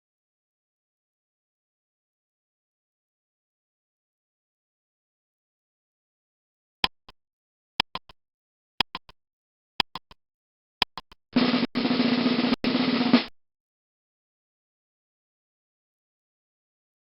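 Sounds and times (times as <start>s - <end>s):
sharp timer ticks: 6.8s - 7.2s, 7.8s - 8.2s, 8.8s - 9.2s, 9.8s - 10.2s, 10.8s - 11.8s
snare drum roll: 11.4s - 13.3s.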